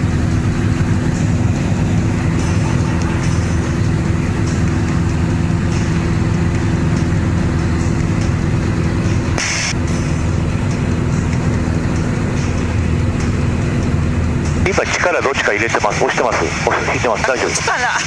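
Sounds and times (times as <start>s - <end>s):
small airplane engine in flight: 0.0s - 18.0s
short hiss: 9.4s - 9.8s.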